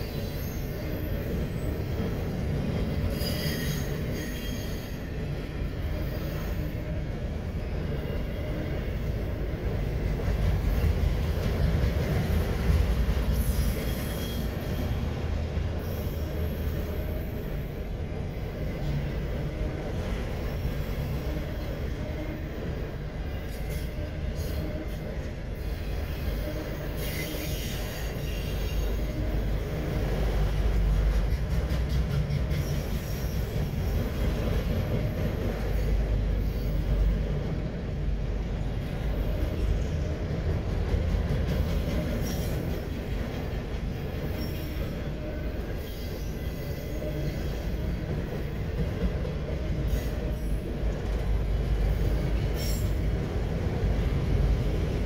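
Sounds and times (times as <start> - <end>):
freight cars rumbling on rails: 0.0 - 55.0
wheel squeal: 3.1 - 5.0, 13.4 - 15.0.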